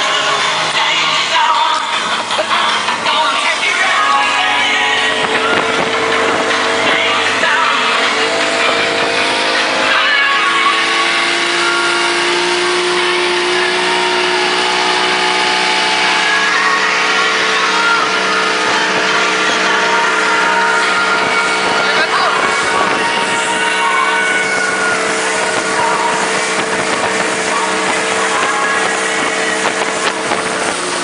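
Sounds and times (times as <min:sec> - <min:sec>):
motorboat engine droning: 0:00.0 - 0:31.0.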